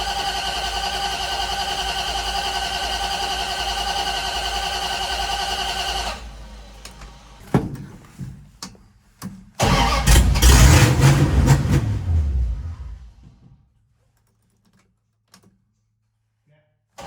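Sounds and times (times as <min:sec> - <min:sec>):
pickup engine starting and running: 0:00.0 - 0:07.5, 0:09.6 - 0:13.5.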